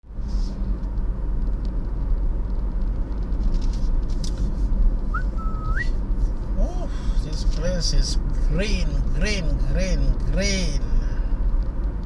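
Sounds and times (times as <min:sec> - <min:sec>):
car driving on road: 0:00.0 - 0:12.0
rising whistle: 0:05.1 - 0:06.0.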